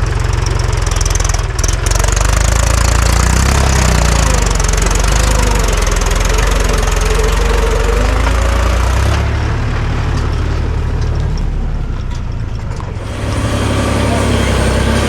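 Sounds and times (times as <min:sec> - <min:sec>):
diesel tractor engine running: 0:00.0 - 0:15.0.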